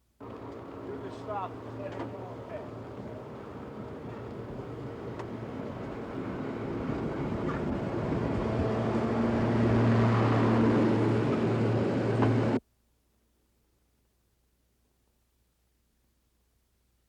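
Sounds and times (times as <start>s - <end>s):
vehicle running with low hum: 0.2s - 12.6s.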